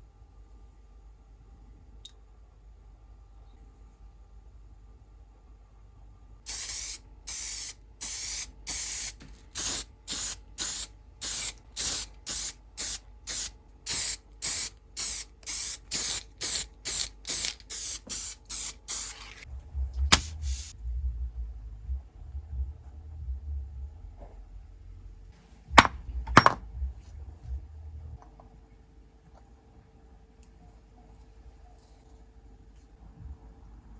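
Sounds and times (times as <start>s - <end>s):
spray paint hissing in bursts: 6.5s - 19.5s, 20.1s - 20.7s
low rumble: 19.5s - 28.3s.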